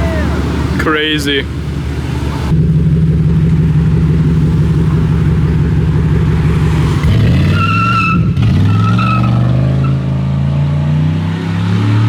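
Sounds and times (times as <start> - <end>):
car engine revving: 0.0 - 12.0
tires squealing: 4.0 - 12.0.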